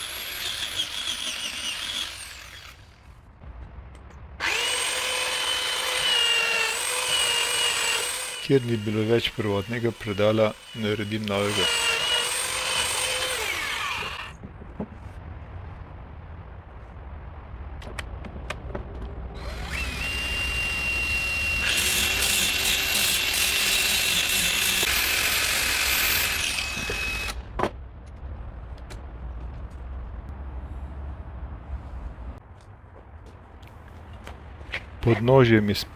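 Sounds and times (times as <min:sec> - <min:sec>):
power tool whining: 0:04.4 - 0:14.3, 0:19.4 - 0:27.4.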